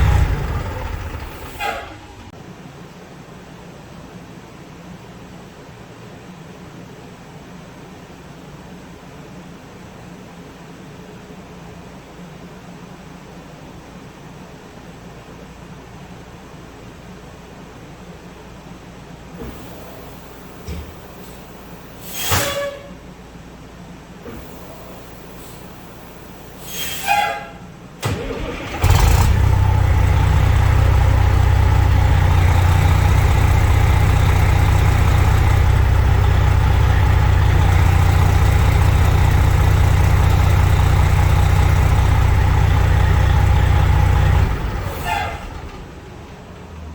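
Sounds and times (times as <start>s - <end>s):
bus engine starting and rumbling: 0.0s - 2.6s, 19.2s - 46.9s.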